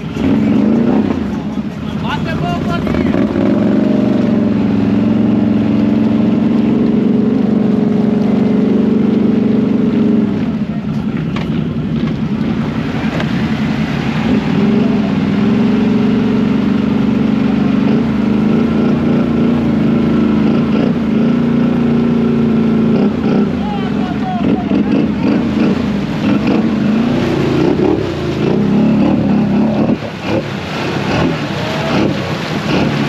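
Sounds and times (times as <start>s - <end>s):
atv engine running: 0.0s - 33.0s.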